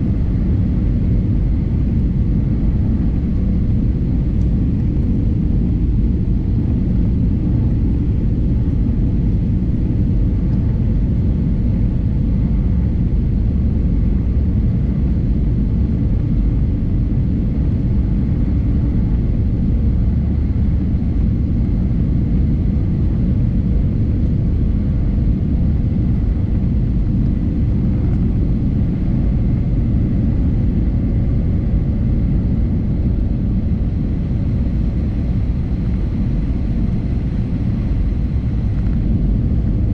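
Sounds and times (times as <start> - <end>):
aircraft engine and airflow rumble: 0.0 - 39.9
faint steady hum tones: 0.0 - 39.9.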